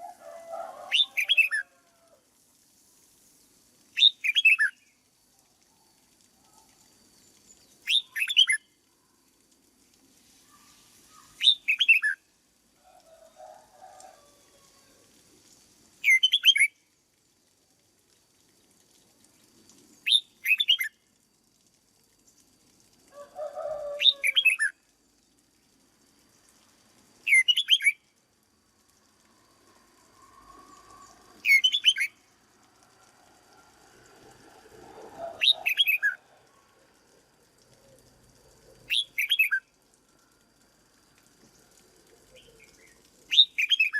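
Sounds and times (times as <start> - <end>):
bird whistled song: 0.9 - 1.7, 4.0 - 4.8, 7.8 - 8.6, 11.4 - 12.2, 16.0 - 16.7, 20.0 - 20.9, 24.0 - 24.7, 27.3 - 28.0, 31.4 - 32.2, 35.3 - 36.2, 38.9 - 39.6, 42.4 - 43.9.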